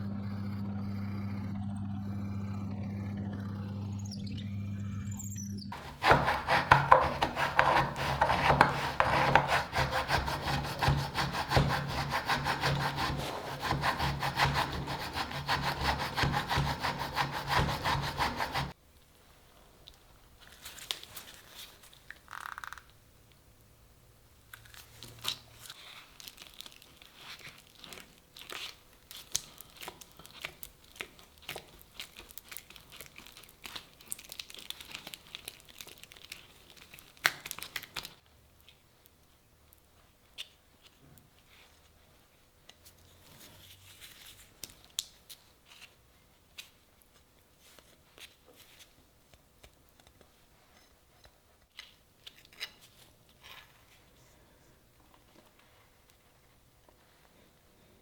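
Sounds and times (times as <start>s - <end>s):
saw cutting wood: 0.0s - 4.6s, 5.7s - 18.8s.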